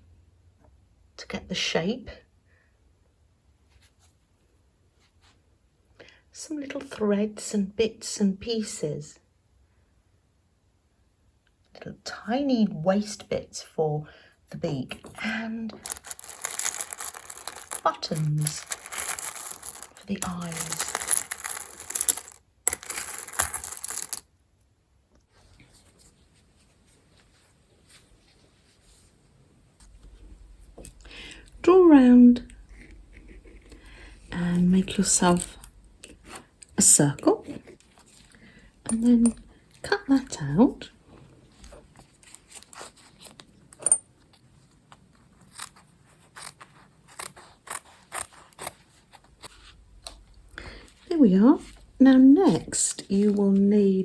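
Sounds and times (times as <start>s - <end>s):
buttons clattering: 15.8s - 24.2s.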